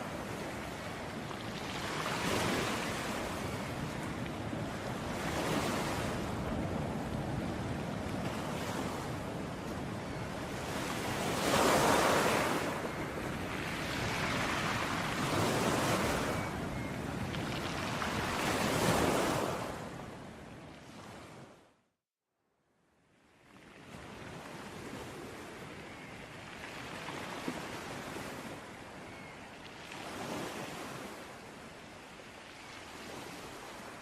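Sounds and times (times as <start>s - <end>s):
ocean waves breaking on beach: 0.0s - 21.7s, 23.5s - 34.0s.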